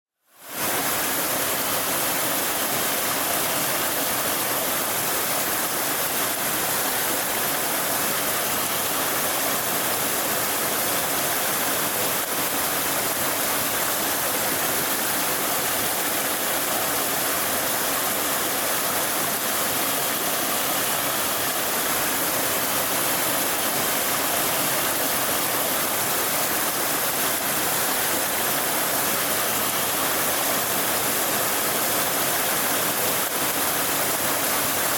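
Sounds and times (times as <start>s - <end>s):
stream water rushing: 0.3s - 34.9s.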